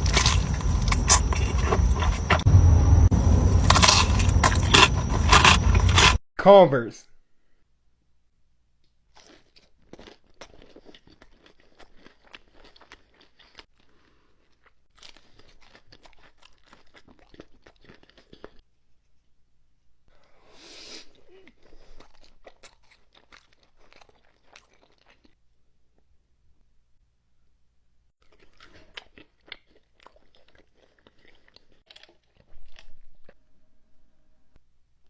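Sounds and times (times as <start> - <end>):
crunchy chewing of food: 0.0 - 6.2, 8.8 - 19.0, 20.2 - 26.1, 28.2 - 33.5.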